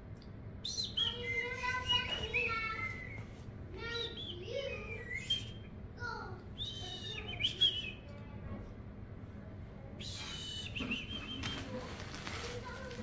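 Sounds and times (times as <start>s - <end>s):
bird chirping and whistling: 0.6s - 5.7s, 6.6s - 8.1s, 10.0s - 11.8s.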